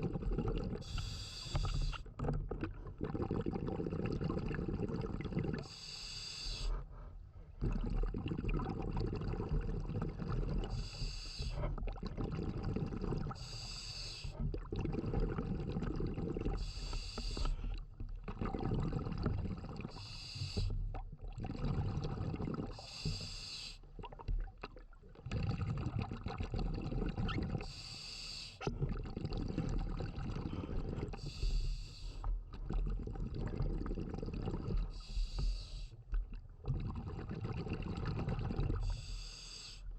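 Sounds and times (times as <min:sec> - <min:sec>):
exhaled bubbles rumbling: 0:00.0 - 0:05.8, 0:06.6 - 0:27.8, 0:28.6 - 0:39.9
regulator inhalation hiss: 0:00.9 - 0:02.0, 0:05.7 - 0:06.7, 0:10.7 - 0:11.6, 0:13.4 - 0:14.4, 0:16.6 - 0:17.6, 0:20.0 - 0:20.7, 0:22.8 - 0:23.8, 0:27.7 - 0:28.6, 0:31.2 - 0:32.2, 0:35.0 - 0:35.9, 0:38.9 - 0:39.9.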